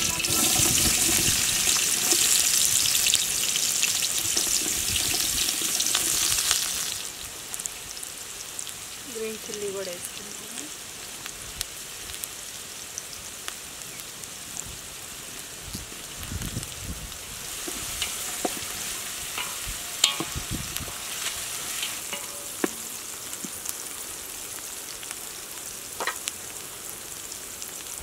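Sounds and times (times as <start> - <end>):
onions sizzling in hot oil: 0.0 - 28.0.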